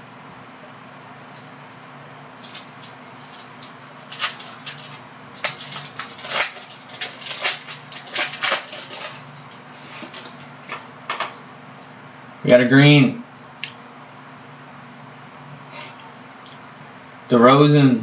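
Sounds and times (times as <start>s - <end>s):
faint steady hum: 0.0s - 18.0s
cards and wrappers rustling: 2.4s - 10.5s.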